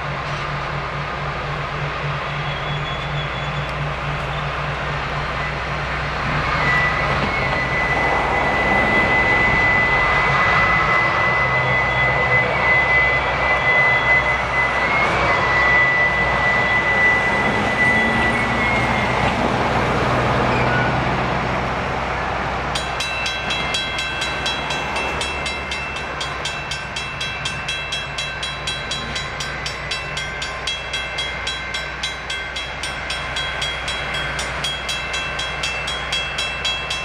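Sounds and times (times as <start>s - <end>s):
train cars rumbling: 0.0s - 37.0s
wheel flange squeal: 2.2s - 19.5s, 20.3s - 21.1s.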